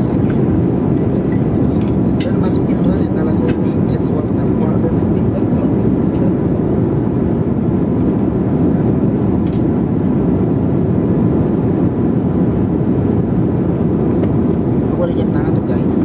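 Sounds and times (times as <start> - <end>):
airplane engine rumble: 0.0 - 16.0
cabin airflow noise: 0.0 - 16.0.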